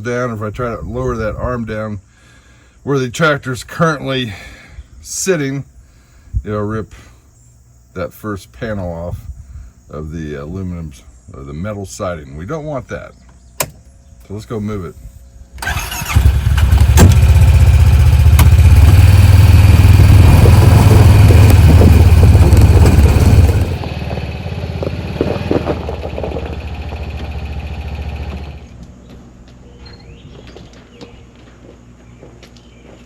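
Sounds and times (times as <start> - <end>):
engine starting and running: 15.6 - 28.8.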